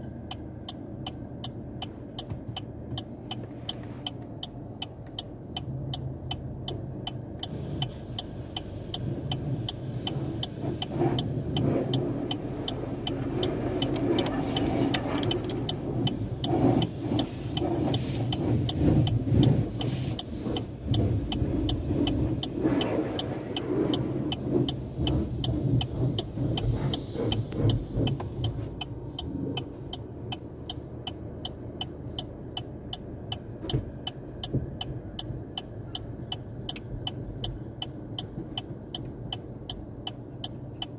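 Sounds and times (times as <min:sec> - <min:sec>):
steady low hum: 0:00.0 - 0:40.1
light regular ticking: 0:00.0 - 0:40.9
car wash spray and brushes: 0:07.4 - 0:32.3.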